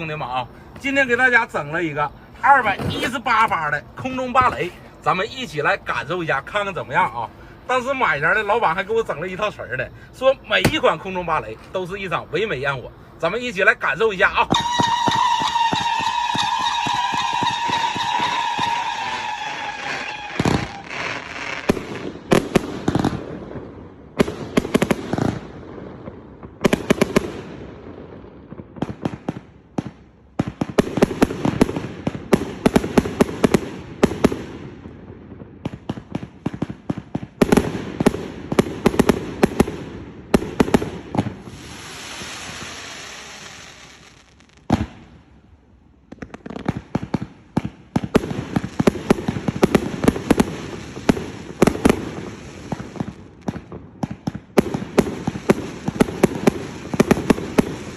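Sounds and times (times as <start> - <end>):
firework pops and bursts: 0.0 - 5.8, 10.5 - 11.8, 14.3 - 45.2, 46.0 - 57.9
firework hissing crackle: 0.0 - 25.6, 37.4 - 45.4, 46.1 - 53.8, 54.4 - 57.9.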